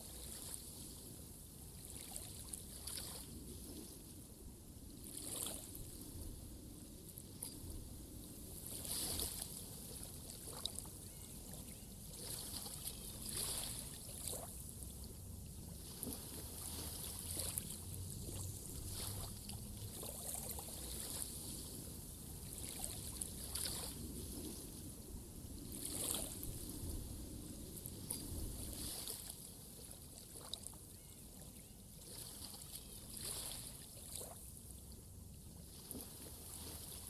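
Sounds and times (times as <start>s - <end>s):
water splashing and lapping: 1.8s - 4.0s, 5.0s - 5.9s, 8.6s - 21.8s, 22.4s - 24.8s, 25.7s - 26.6s, 27.9s - 30.8s, 32.0s - 35.0s, 35.6s - 37.0s.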